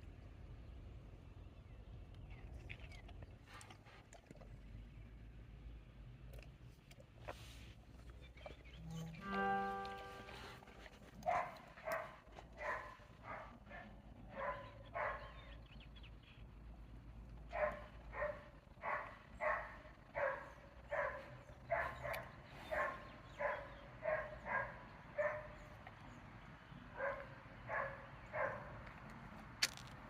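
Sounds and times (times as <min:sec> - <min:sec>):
dog barking: 0:09.2 - 0:15.5, 0:17.5 - 0:25.6, 0:27.0 - 0:28.7.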